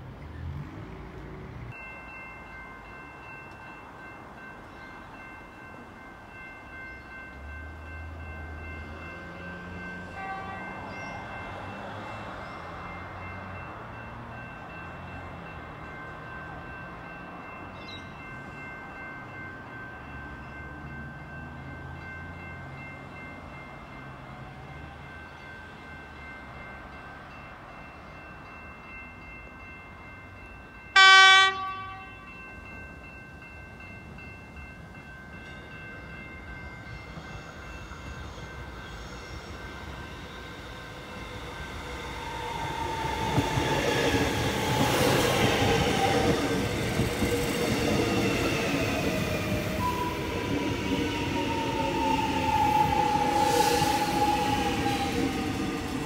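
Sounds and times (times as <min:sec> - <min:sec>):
train running noise: 0:00.0 - 0:56.0
train horn blast: 0:10.1 - 0:10.9, 0:31.0 - 0:32.3.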